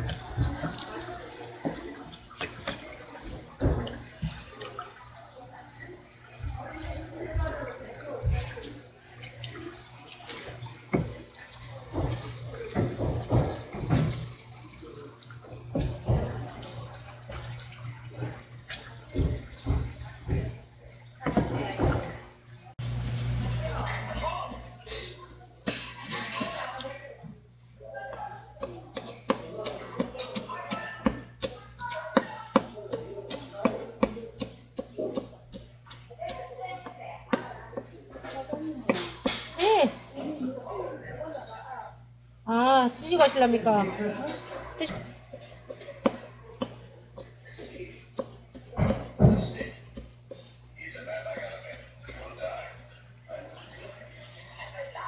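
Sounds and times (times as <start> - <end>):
tap water running: 0.0 - 27.2, 28.6 - 40.2, 43.0 - 55.0
knife chopping on cutting board: 44.9 - 50.5.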